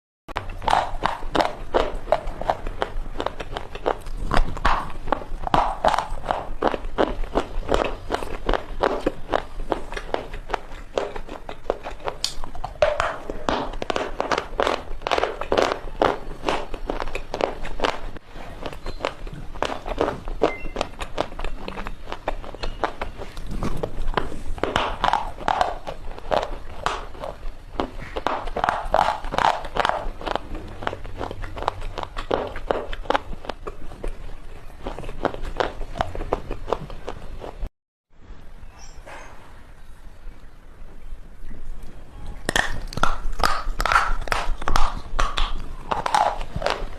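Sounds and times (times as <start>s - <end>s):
chalk chips crunching: 42.5s - 46.9s.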